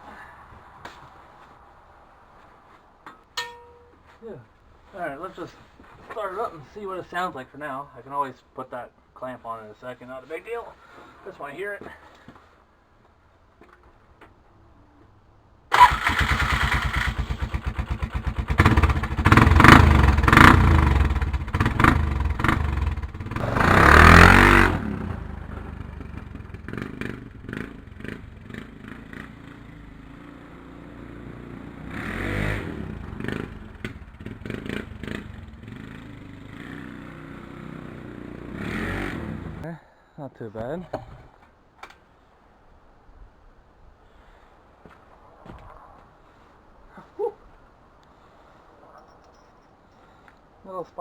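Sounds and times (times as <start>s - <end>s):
atv engine starting and revving: 15.7s - 39.6s.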